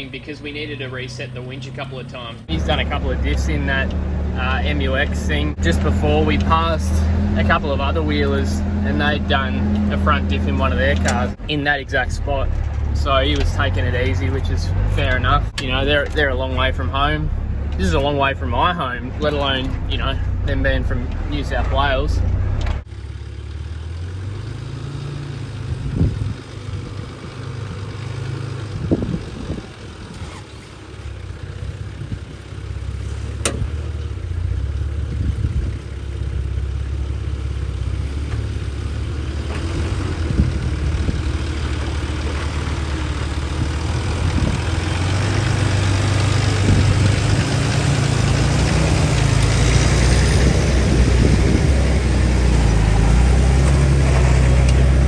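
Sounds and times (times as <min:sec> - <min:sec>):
vehicle engine at low speed: 0:00.0 - 0:55.0.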